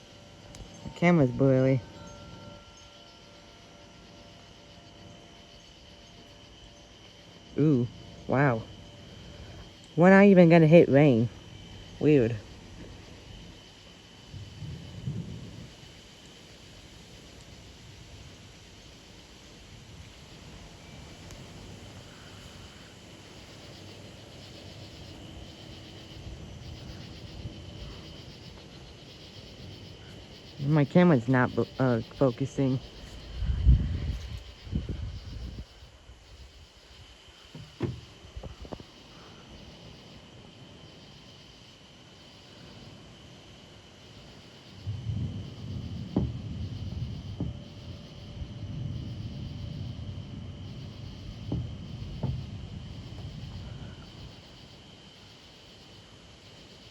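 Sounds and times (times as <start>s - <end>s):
low rumbling noise: 0.0s - 41.0s, 44.7s - 54.9s
crickets chirping: 0.0s - 56.9s
storm wind buffeting microphone: 8.2s - 39.7s, 44.6s - 54.9s.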